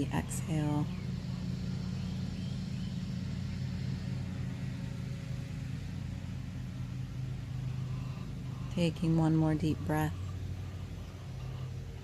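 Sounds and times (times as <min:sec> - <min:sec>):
low rumbling hum: 0:00.0 - 0:12.0.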